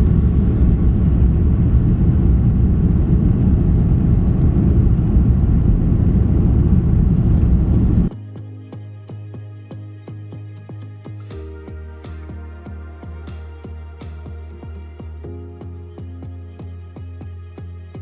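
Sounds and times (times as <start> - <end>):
jet engines rumbling in cabin: 0.0 - 8.1
quiet music with ticking beat: 8.1 - 18.0.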